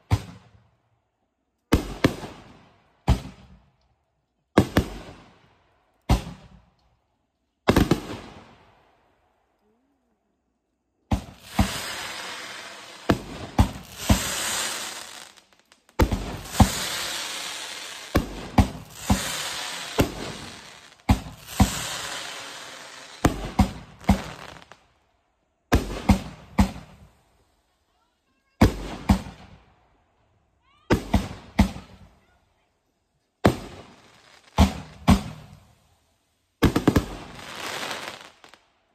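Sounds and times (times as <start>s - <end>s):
firework launch thumps and bursts: 4.6s - 5.2s, 6.1s - 6.6s, 7.7s - 8.4s, 11.1s - 15.0s, 15.9s - 24.6s, 25.7s - 27.0s, 28.6s - 29.6s, 34.5s - 35.6s, 36.6s - 37.4s
crackling hiss of sparks: 11.2s - 24.9s, 36.6s - 38.6s.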